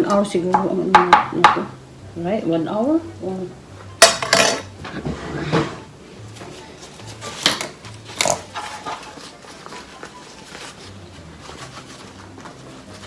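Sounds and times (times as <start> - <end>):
kitchen knocks and clatters: 4.0 - 5.9, 7.2 - 9.9.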